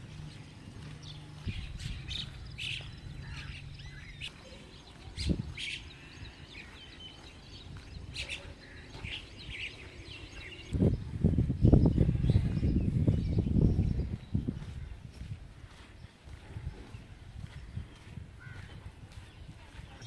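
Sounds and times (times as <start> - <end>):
low steady rumble: 0.0 - 4.3
birds chirping: 0.0 - 20.0.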